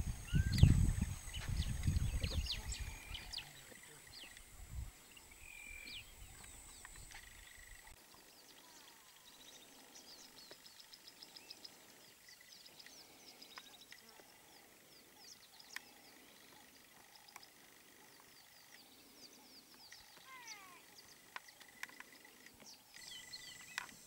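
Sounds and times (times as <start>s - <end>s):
low rumble on microphone: 0.0s - 3.4s
wild birds chirping and calling: 0.0s - 24.0s.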